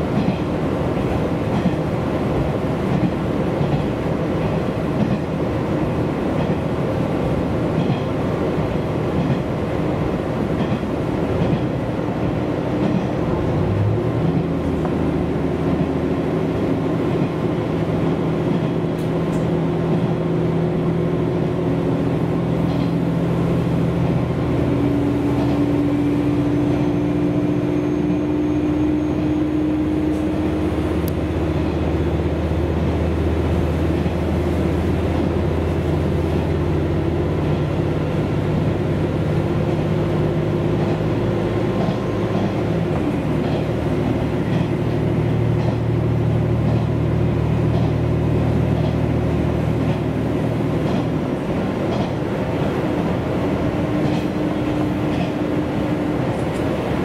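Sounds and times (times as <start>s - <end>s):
diesel engine drone: 0.0s - 57.0s
faint wheel clicks on rails: 22.6s - 23.0s, 44.4s - 44.9s, 45.5s - 45.9s, 46.6s - 47.0s, 47.6s - 48.1s, 48.7s - 49.0s, 50.8s - 52.8s.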